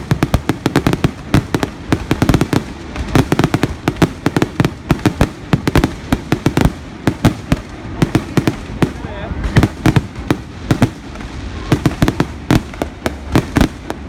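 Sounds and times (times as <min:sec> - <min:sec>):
fireworks banging: 0:00.0 - 0:14.0.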